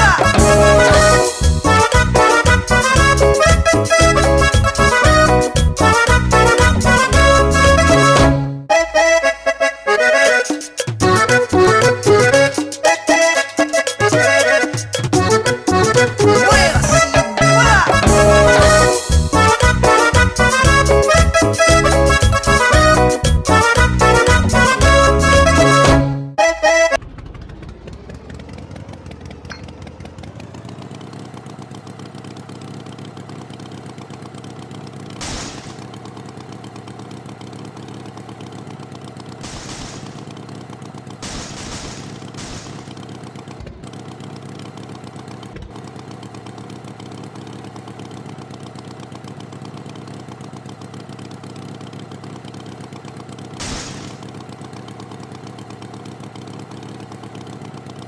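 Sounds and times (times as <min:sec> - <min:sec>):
tractor engine idling: 0:00.0 - 0:26.0, 0:26.6 - 0:58.0
short noisy engine bursts: 0:00.0 - 0:30.9, 0:35.0 - 0:37.4, 0:38.0 - 0:45.8, 0:53.5 - 0:55.4.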